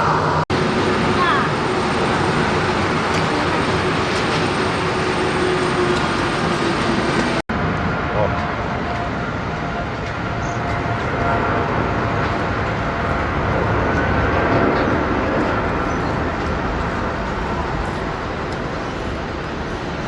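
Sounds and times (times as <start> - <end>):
jet engines rumbling with whine: 0.0 - 20.0.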